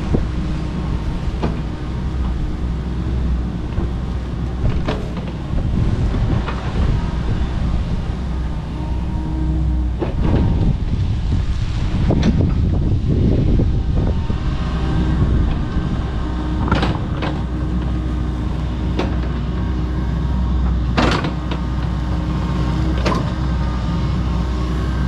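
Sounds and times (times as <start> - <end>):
excavator diesel engine running: 0.0 - 25.0
hydraulic whine: 0.0 - 25.0.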